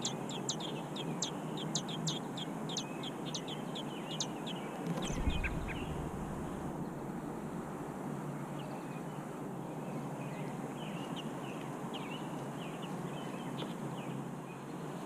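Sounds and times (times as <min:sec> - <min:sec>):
birds chirping: 0:00.0 - 0:07.8
low background rumble: 0:04.9 - 0:09.2.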